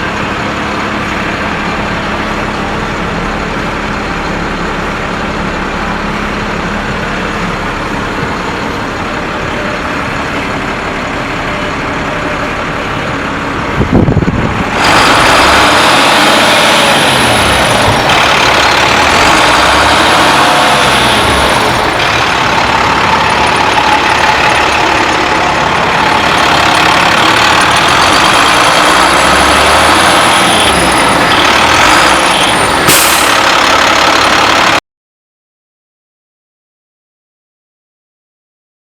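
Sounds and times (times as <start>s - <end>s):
diesel truck engine running: 0.0s - 34.8s
sudden loud burst: 32.3s - 33.6s.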